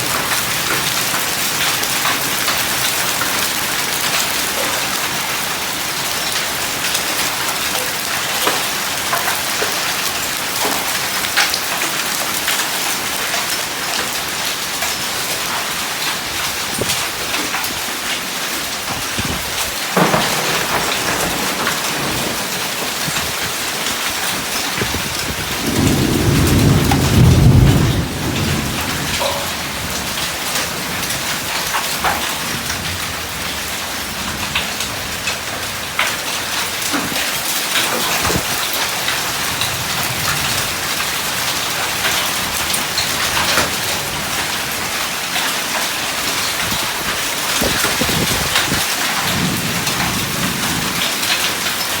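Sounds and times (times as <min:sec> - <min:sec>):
hailstones ticking on surfaces: 0:00.0 - 0:52.0
heavy rain hissing: 0:15.0 - 0:52.0
thunder rumble: 0:19.1 - 0:52.0.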